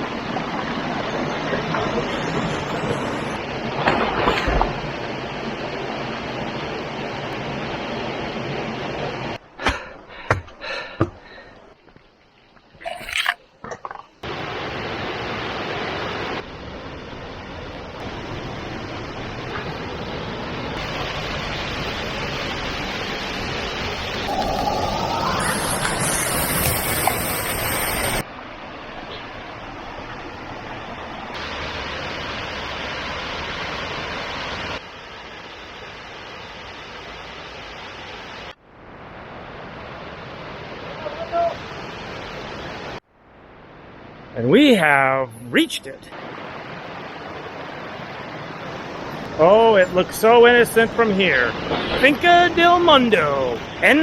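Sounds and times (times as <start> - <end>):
rushing water: 0.0 - 9.6, 10.7 - 44.4, 45.7 - 54.0
rising whistle-like tone: 24.0 - 28.2.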